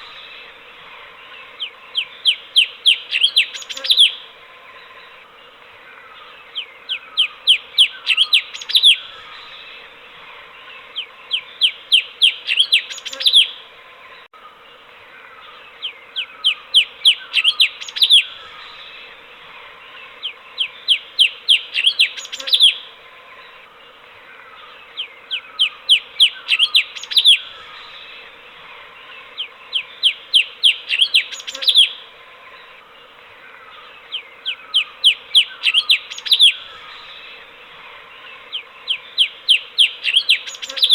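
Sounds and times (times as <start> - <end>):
faint steady hum: 0.0 - 40.9
bird song sweeping notes: 24.4 - 32.8, 33.6 - 40.9.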